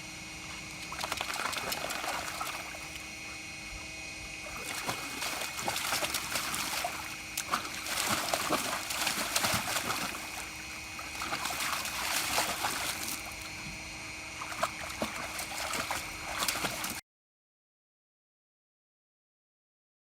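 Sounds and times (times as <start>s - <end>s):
dog splashing in water: 0.8s - 3.2s, 4.5s - 13.6s, 14.4s - 17.0s.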